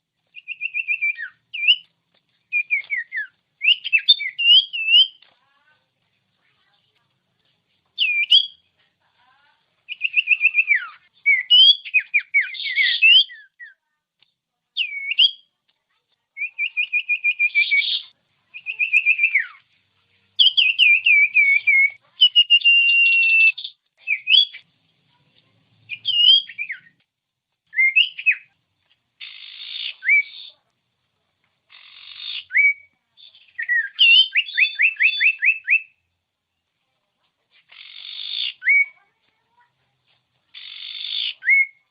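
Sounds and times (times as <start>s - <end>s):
bird singing whistled phrases: 0.3s - 1.9s, 2.5s - 5.3s, 8.0s - 8.6s, 9.9s - 13.8s, 14.8s - 15.5s, 16.4s - 19.6s, 20.4s - 24.6s, 25.9s - 27.0s, 27.7s - 28.5s, 29.2s - 30.6s, 31.8s - 36.0s, 37.8s - 39.0s, 40.6s - 41.9s.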